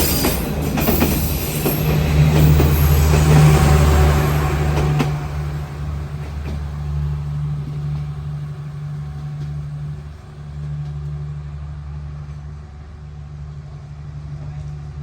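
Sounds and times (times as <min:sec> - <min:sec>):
locomotive engine humming: 0:00.0 - 0:15.0.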